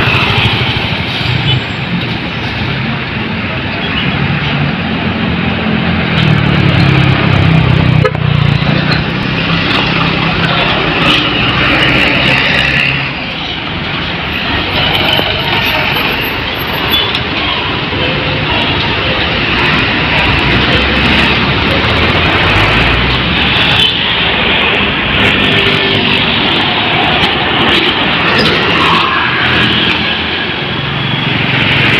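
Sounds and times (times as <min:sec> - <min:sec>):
large engine rumbling: 0:00.0 - 0:31.9
traffic and tyre noise: 0:00.0 - 0:31.9.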